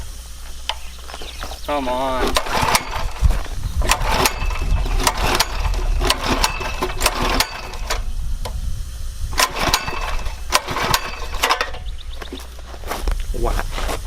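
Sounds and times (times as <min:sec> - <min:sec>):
small engine cranking: 0:00.7 - 0:08.1, 0:09.3 - 0:11.9.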